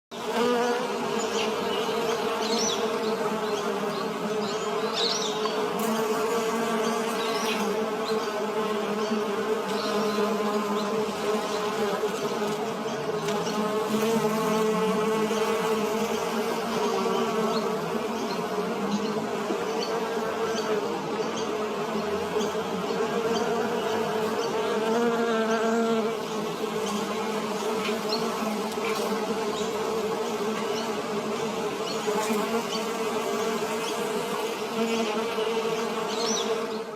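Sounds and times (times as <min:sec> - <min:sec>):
bees buzzing: 0:00.1 - 0:36.9.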